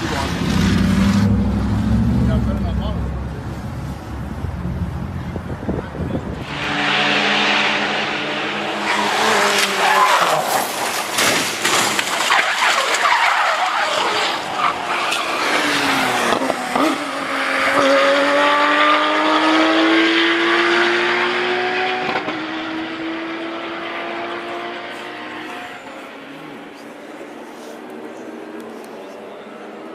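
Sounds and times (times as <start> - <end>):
car engine revving: 0.0 - 5.5, 6.2 - 11.0, 11.7 - 26.8
tyres skidding and squealing: 6.0 - 17.8.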